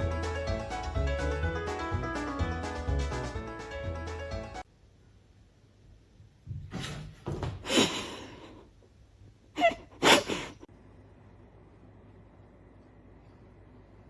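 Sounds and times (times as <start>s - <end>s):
person sneezing: 9.6s - 10.7s.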